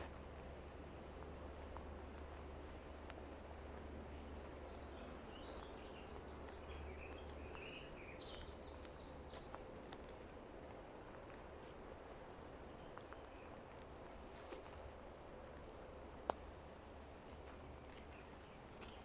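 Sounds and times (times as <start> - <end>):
birds chirping: 0.0 - 10.4, 11.6 - 14.8
low steady hum: 0.0 - 19.0.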